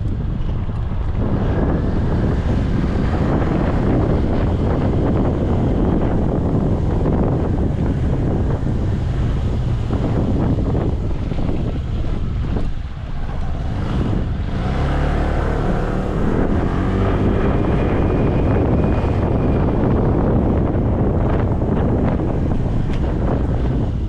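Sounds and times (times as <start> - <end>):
motorcycle engine running: 0.0 - 24.0
wind rushing over microphone: 0.0 - 24.0.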